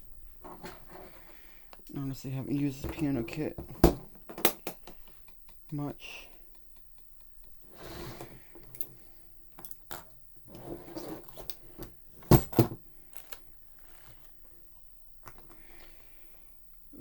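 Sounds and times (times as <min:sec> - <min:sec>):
rustling: 0:00.0 - 0:04.2, 0:09.9 - 0:16.3
tools clicking and clinking: 0:04.3 - 0:07.6.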